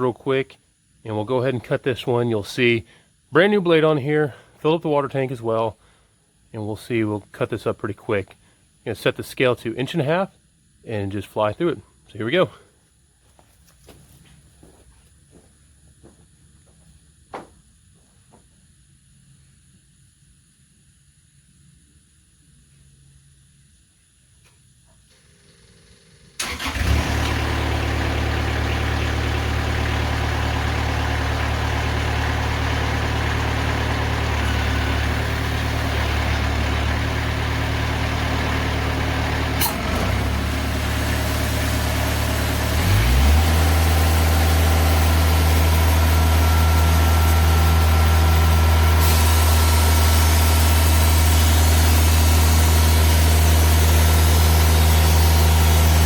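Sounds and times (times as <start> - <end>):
sawmill engine running: 25.1 - 56.0.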